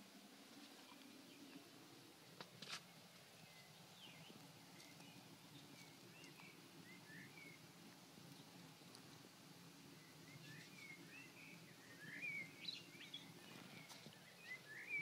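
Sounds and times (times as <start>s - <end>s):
faint bird chirps: 2.8s - 7.7s, 9.9s - 15.0s.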